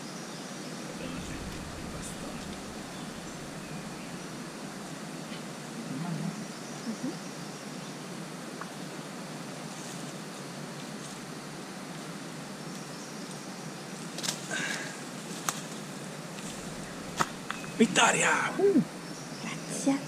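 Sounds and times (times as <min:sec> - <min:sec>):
outdoor background noise: 0:00.0 - 0:20.0
low bumps: 0:00.9 - 0:05.0, 0:16.3 - 0:18.4
faint high chirps: 0:16.5 - 0:18.8.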